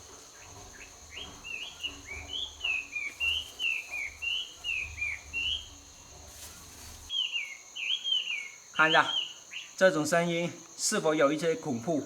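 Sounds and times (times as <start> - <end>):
songbird whistling: 0.8 - 5.8, 7.1 - 9.7.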